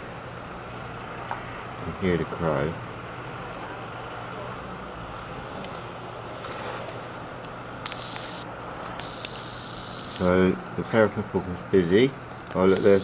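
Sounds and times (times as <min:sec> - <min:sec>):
distant road traffic hum: 0:00.0 - 0:13.0.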